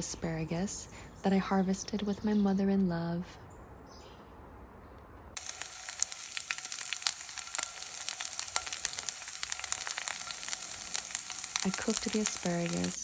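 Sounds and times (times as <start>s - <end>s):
food sizzling in a hot pan: 5.4s - 13.0s.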